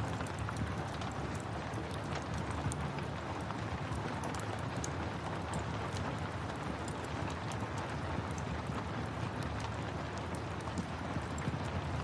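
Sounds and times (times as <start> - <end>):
steady rain hiss: 0.0 - 12.0
wood fire crackling: 0.0 - 12.0.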